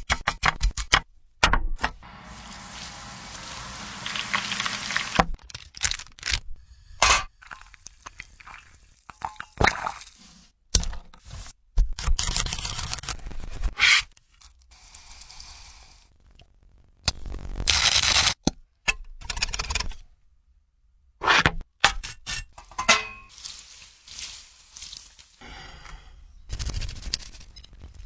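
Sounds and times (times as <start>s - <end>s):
food sizzling: 2.0s - 5.3s, 23.3s - 25.4s.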